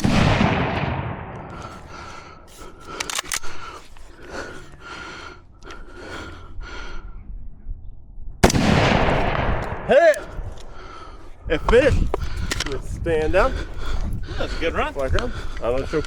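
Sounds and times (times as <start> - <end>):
gear clicking and rustling: 1.6 - 4.8.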